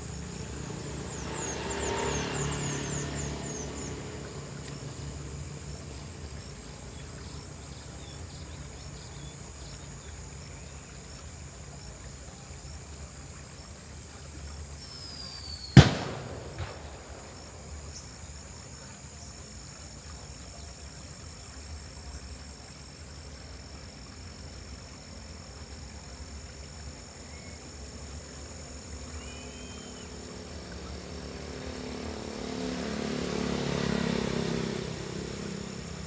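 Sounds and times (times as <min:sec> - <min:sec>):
motorcycle passing: 0:00.0 - 0:11.0, 0:15.8 - 0:18.9, 0:27.6 - 0:36.0
insects buzzing: 0:00.0 - 0:36.0.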